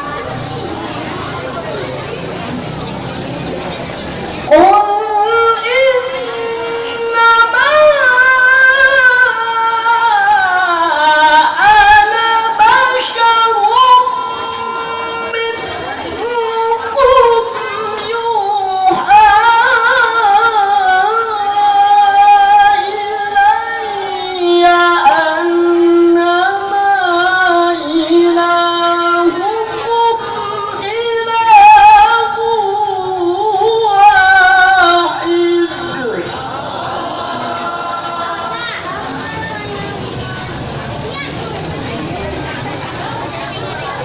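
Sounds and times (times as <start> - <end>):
child chanting melodic recitation: 4.5 - 36.3.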